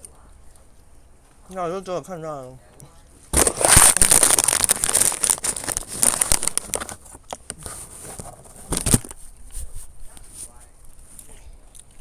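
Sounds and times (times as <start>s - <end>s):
loud crinkling and rustling: 3.3s - 12.0s.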